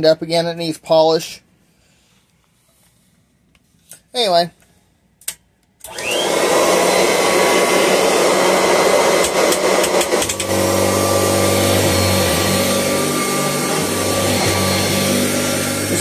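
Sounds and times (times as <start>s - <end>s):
vacuum cleaner motor running: 5.9s - 16.0s.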